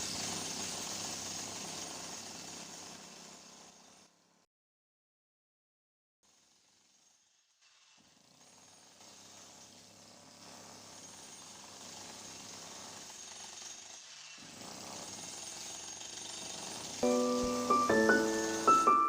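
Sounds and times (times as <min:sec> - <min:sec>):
jackhammer hammering: 0:00.0 - 0:03.9, 0:08.0 - 0:19.0.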